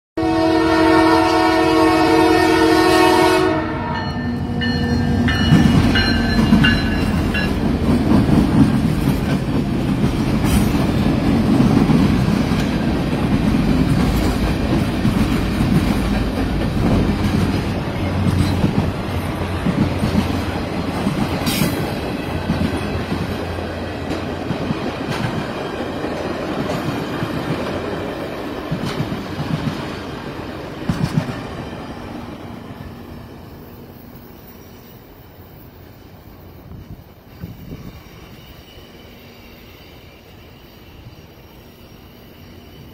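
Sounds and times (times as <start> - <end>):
locomotive horn blast: 0.2 - 6.5
train rumbling and clattering on rails: 0.3 - 42.9.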